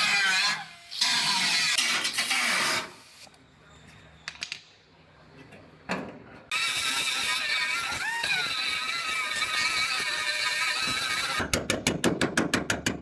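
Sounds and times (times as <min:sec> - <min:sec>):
angle grinder whining: 0:06.5 - 0:11.4.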